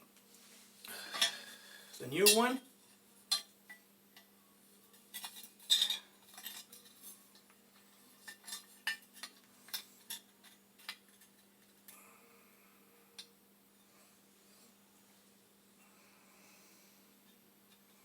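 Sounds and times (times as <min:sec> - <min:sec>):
metal tools clinking: 0:02.1 - 0:02.6, 0:04.9 - 0:07.2.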